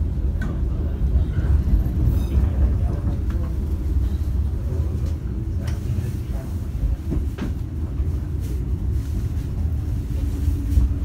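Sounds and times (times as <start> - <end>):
passenger train rumbling: 0.0 - 11.0.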